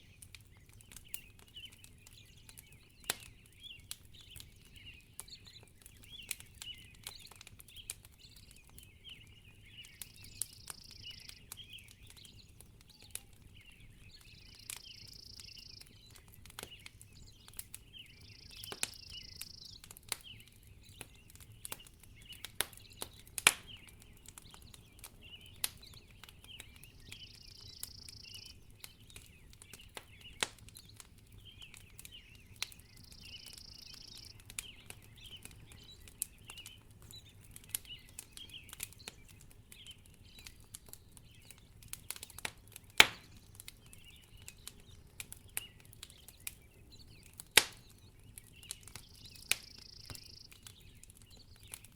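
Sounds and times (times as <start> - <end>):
wood fire crackling and popping: 0.0 - 51.9
faint high twittering: 27.1 - 28.8, 32.1 - 35.4, 48.6 - 50.7.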